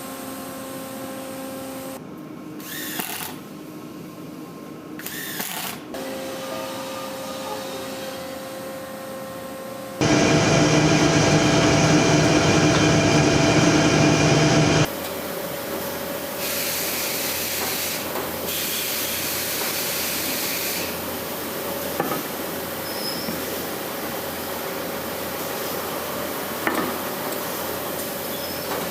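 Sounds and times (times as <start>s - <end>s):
woodworking machine hum with whine: 8.4s - 14.9s
hissing machine noise: 10.0s - 14.9s.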